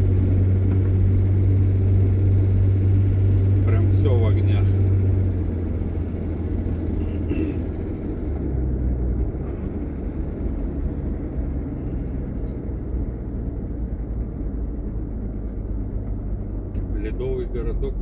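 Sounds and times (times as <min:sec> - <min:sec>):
vehicle engine and road rumble: 0:00.0 - 0:18.0.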